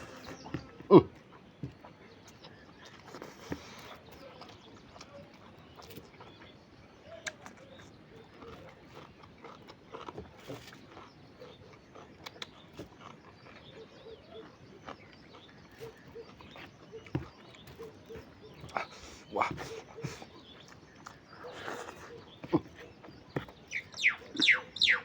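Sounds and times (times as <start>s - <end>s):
person chewing and lip-smacking: 7.2s - 17.5s.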